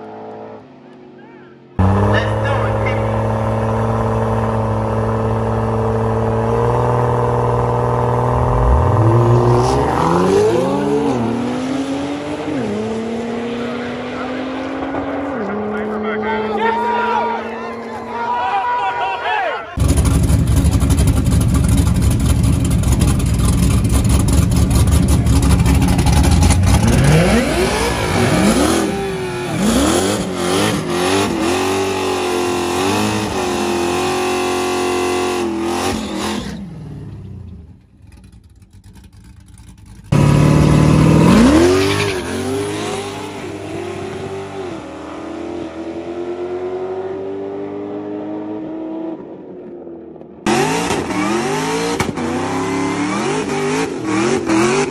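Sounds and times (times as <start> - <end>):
drag car engine revving: 1.8 - 16.5, 19.8 - 54.9.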